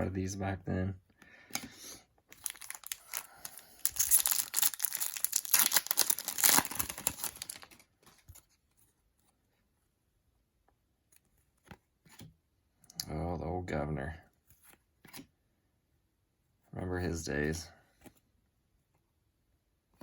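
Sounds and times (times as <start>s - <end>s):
plastic wrapper tearing and crinkling: 2.3s - 7.9s.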